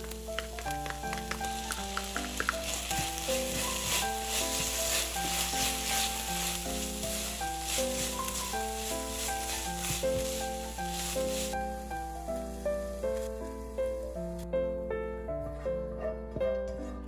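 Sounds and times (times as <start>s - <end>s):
spatula stirring: 0.0s - 13.3s
food sizzling in a frying pan: 0.0s - 14.2s
soft background music: 0.0s - 17.0s.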